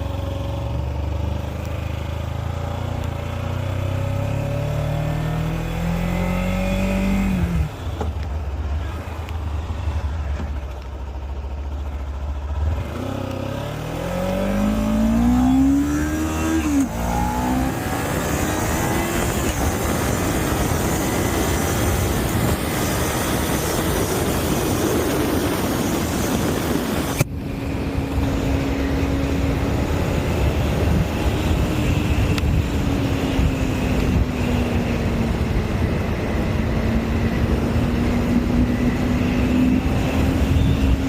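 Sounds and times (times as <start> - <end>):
wind rush on microphone: 16.5 - 41.0.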